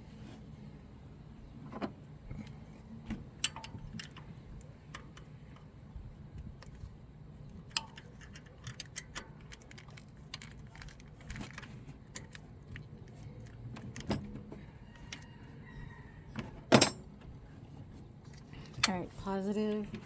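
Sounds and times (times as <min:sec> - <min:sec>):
metal tools clinking: 0:16.7 - 0:17.0.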